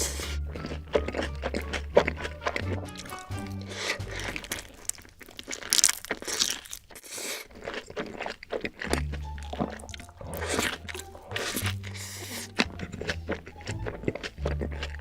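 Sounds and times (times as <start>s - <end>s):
music with low bass: 0.0s - 4.7s, 8.9s - 15.0s
person chewing crunchy food: 0.0s - 15.0s.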